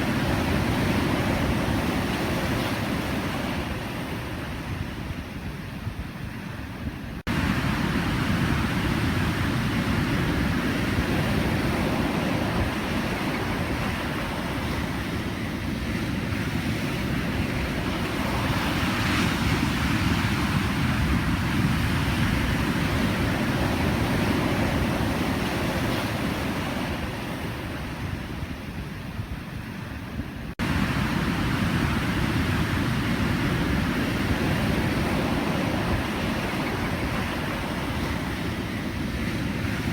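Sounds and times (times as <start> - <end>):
waves breaking: 7.2 - 28.0, 30.4 - 39.9.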